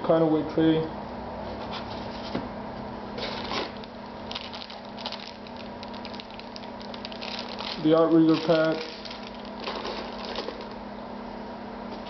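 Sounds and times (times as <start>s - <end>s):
packaging rustling and crinkling: 3.2s - 10.8s.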